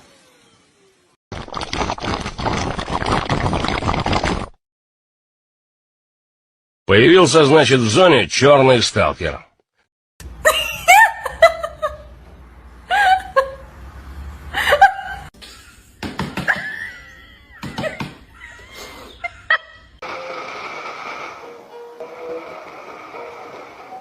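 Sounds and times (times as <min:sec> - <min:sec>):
person laughing: 0:10.5 - 0:12.1, 0:12.9 - 0:13.7, 0:14.6 - 0:15.8, 0:16.4 - 0:19.9.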